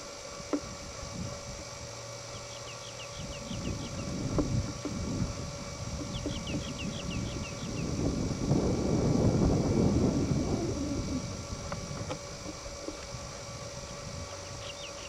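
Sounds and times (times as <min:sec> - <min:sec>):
bird chirping: 0:02.3 - 0:04.1, 0:06.0 - 0:07.9, 0:14.3 - 0:15.0
low rumbling noise: 0:03.2 - 0:14.6.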